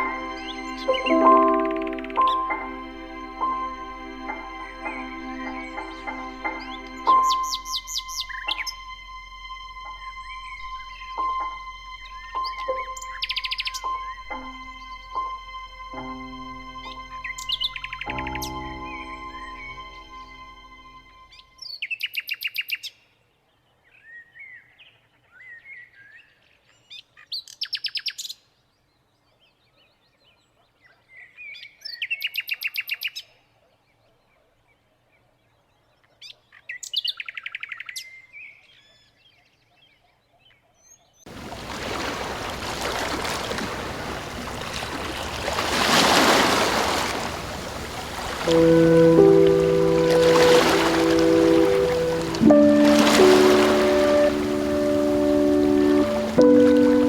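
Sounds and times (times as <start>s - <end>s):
bird chirps: 0.0s - 2.7s, 4.8s - 9.0s, 9.8s - 16.1s
running water rushing: 0.0s - 21.1s, 41.3s - 57.0s.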